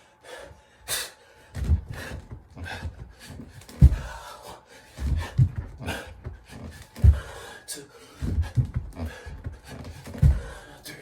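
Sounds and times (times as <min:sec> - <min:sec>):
man panting heavily: 0:00.0 - 0:11.0
hands and feet thudding on floor: 0:01.5 - 0:04.2, 0:04.9 - 0:07.4, 0:08.2 - 0:10.7.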